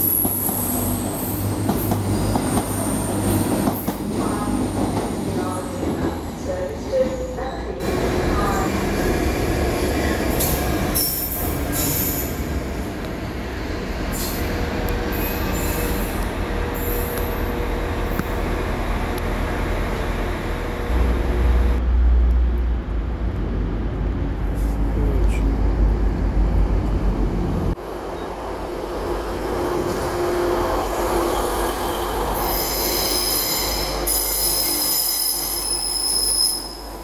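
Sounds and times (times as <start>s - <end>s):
train arriving with low rumble: 0.0s - 37.0s
locomotive wheel squeal: 31.4s - 36.8s.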